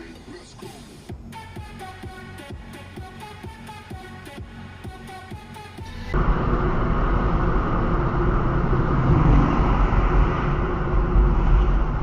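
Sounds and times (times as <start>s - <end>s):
vehicle engine and road rumble: 5.7s - 12.0s.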